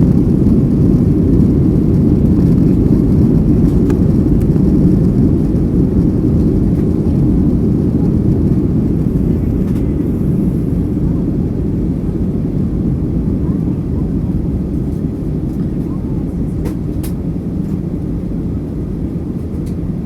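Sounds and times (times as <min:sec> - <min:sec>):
rushing air: 0:00.0 - 0:13.4
jet engines rumbling: 0:00.0 - 0:20.0.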